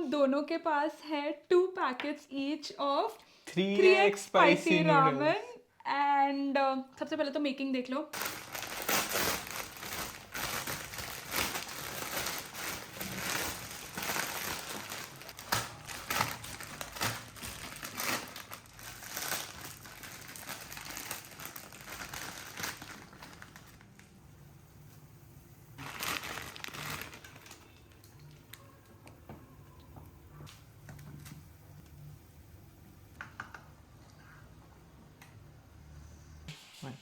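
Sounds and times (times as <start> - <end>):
plastic packets crinkling: 8.2 - 24.2, 25.8 - 28.6.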